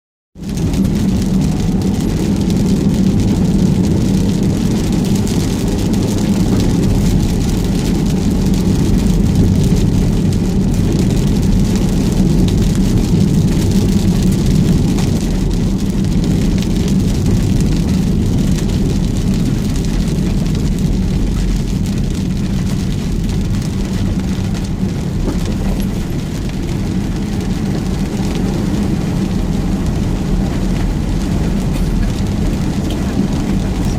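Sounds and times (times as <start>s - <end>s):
heavy rain in strong wind: 0.4s - 33.9s
low steady rumble: 0.4s - 33.9s.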